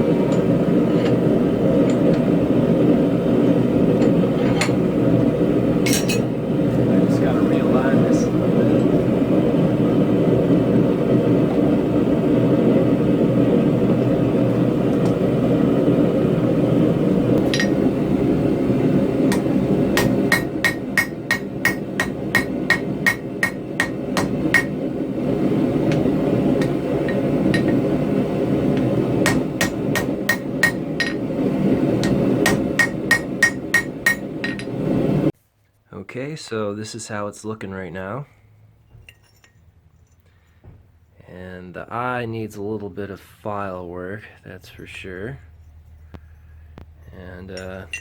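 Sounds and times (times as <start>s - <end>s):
hammer striking steel on anvil: 5.9s - 6.3s, 17.4s - 17.8s, 19.3s - 24.8s, 26.6s - 27.8s, 29.2s - 31.2s, 32.0s - 34.8s, 47.5s - 48.0s.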